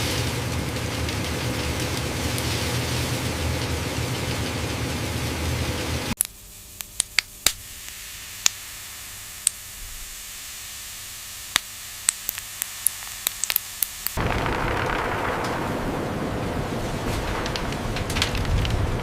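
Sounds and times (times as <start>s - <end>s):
loud steady noise: 0.0s - 19.0s
sharp irregular clicks: 6.2s - 7.6s, 11.5s - 15.6s
low hiss: 6.2s - 18.0s.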